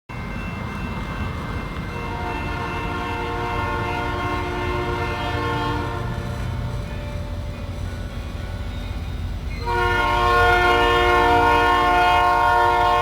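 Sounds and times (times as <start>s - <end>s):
train rumbling: 0.1s - 13.0s
locomotive air horn chord: 1.5s - 6.9s, 9.6s - 13.0s.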